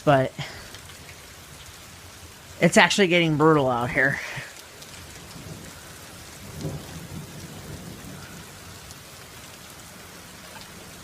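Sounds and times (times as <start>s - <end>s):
heavy rain falling: 0.0s - 11.0s
low rumble of thunder: 5.0s - 11.0s.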